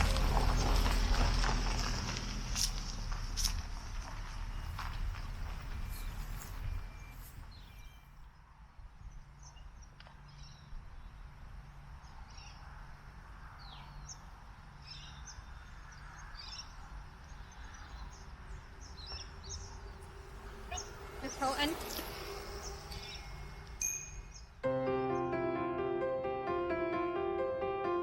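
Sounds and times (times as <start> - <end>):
low outdoor rumble: 0.0 - 6.9, 17.8 - 23.8
small birds chirping: 13.6 - 25.4.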